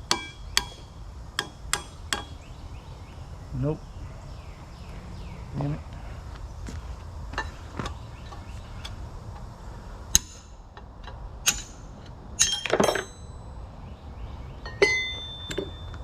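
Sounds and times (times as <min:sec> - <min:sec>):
hammer striking steel punch: 0:00.0 - 0:02.4, 0:10.2 - 0:10.5, 0:11.4 - 0:13.4.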